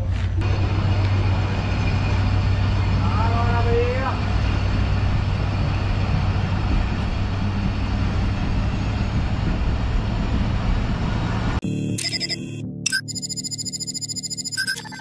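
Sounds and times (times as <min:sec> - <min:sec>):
wheels rushing on rail: 0:00.0 - 0:11.6
locomotive engine drone: 0:00.0 - 0:15.0.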